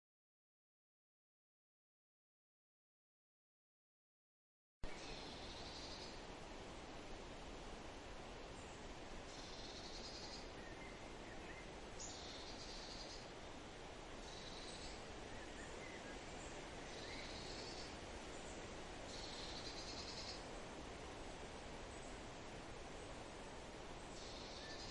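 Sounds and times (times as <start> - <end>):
stream flowing: 4.9 - 24.9.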